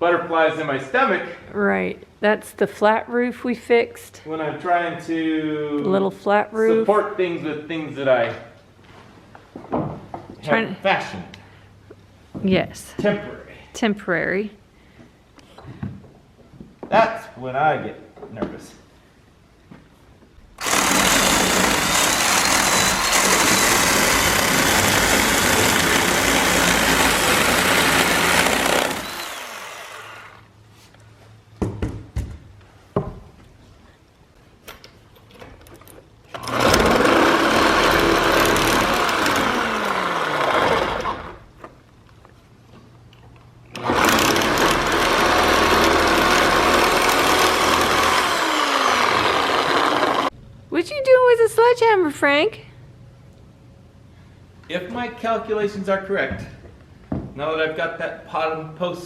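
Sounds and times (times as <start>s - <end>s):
power saw cutting wood: 20.6s - 30.5s, 36.4s - 41.5s, 43.8s - 50.3s
knocks: 31.6s - 33.3s.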